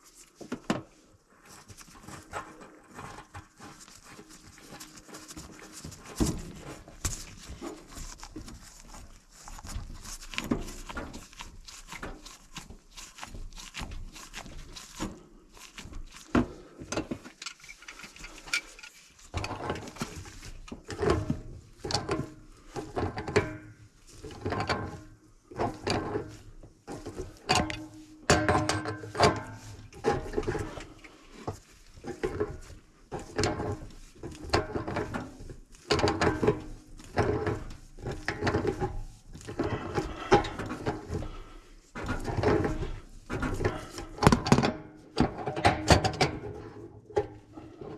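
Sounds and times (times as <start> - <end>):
tools clicking and clattering: 16.9 - 20.2.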